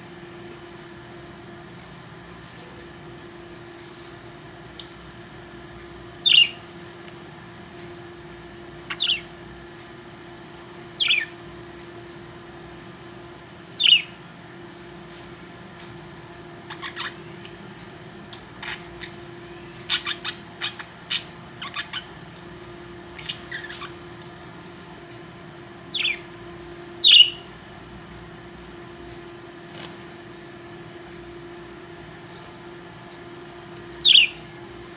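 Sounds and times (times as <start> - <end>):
steady low hum: 0.0 - 34.9
parrots chirping: 6.1 - 6.7, 8.7 - 10.0, 10.7 - 11.7, 13.7 - 14.2, 15.6 - 17.7, 18.3 - 24.9, 25.8 - 27.6, 29.1 - 34.9.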